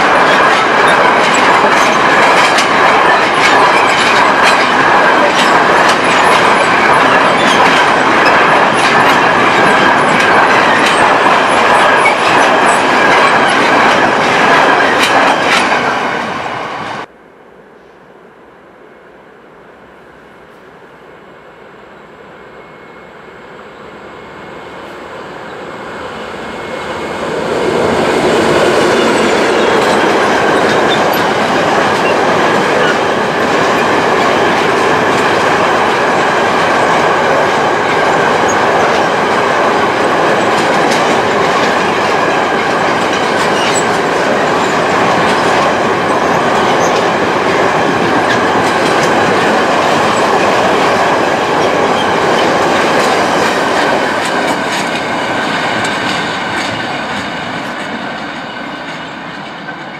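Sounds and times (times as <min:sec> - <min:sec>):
steel wheels rolling on rail: 0:00.0 - 0:17.1, 0:19.3 - 0:59.9
freight train passing: 0:00.0 - 0:59.9
faint clickety-clack: 0:00.1 - 0:15.8, 0:52.4 - 0:59.9.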